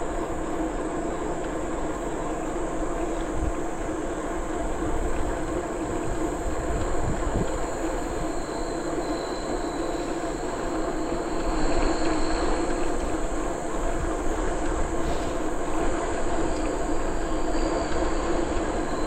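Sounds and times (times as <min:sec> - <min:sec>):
wind on microphone: 0:02.9 - 0:08.8.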